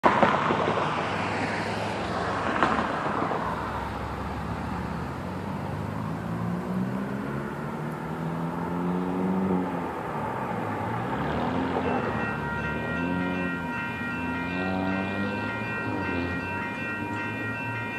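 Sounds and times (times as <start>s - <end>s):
cars passing: 0.0s - 17.9s
engine accelerating and shifting gears: 4.0s - 17.8s.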